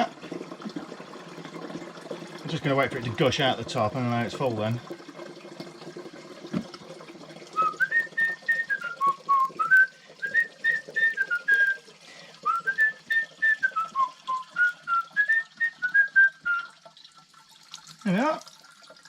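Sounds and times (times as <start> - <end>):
water running into a container: 0.0 - 19.0
person whistling a tune: 7.6 - 16.8.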